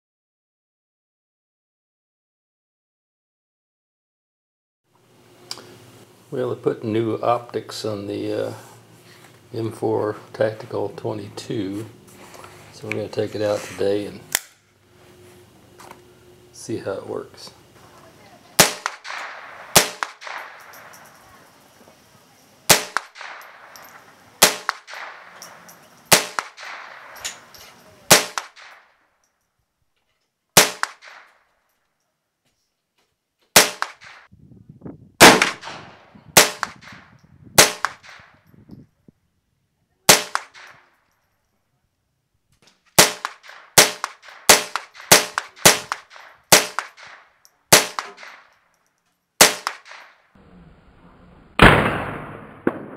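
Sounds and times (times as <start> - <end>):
rifle shots with short echo: 18.6 - 21.6, 22.6 - 28.9, 30.6 - 31.4, 33.6 - 34.3, 35.2 - 38.4, 40.1 - 40.8, 43.0 - 48.6, 49.4 - 50.2, 51.6 - 52.9.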